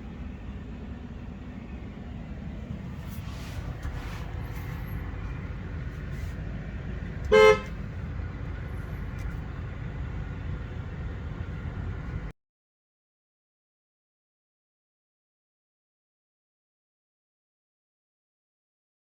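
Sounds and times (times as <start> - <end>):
low outdoor rumble: 0.0 - 12.3
car horn beep: 7.2 - 7.8.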